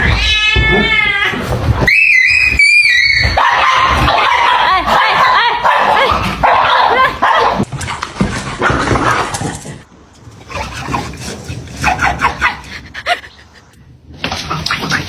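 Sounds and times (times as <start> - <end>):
dog yipping and barking: 2.6 - 7.6.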